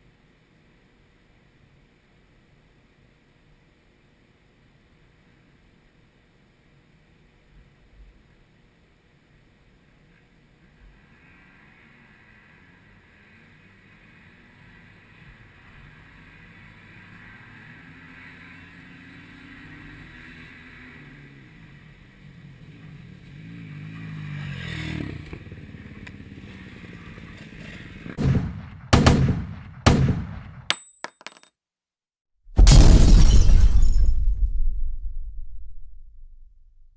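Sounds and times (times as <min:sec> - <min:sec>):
dirt bike engines racing past: 0:09.9 - 0:28.2
loud clattering blasts: 0:28.2 - 0:30.7, 0:32.6 - 0:36.9.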